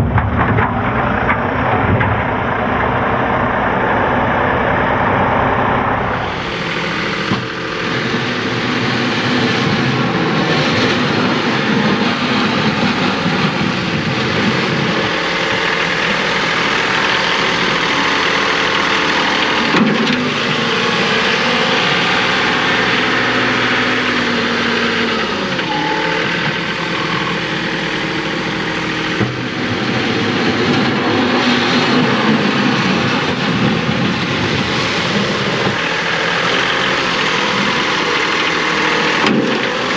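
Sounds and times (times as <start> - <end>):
clunk: 0.0 - 2.9
tractor diesel engine under load: 0.0 - 39.9.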